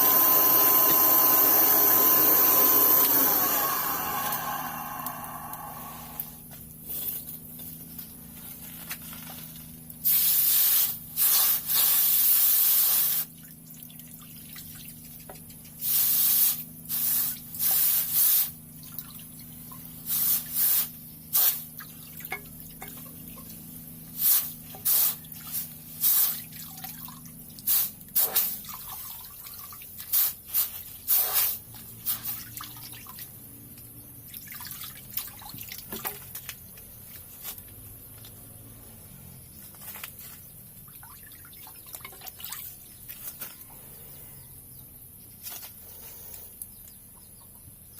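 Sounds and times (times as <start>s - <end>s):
hissing sprays: 10.0s - 13.3s, 15.8s - 18.6s, 20.1s - 21.7s, 24.2s - 26.4s, 27.7s - 28.6s, 30.1s - 32.4s.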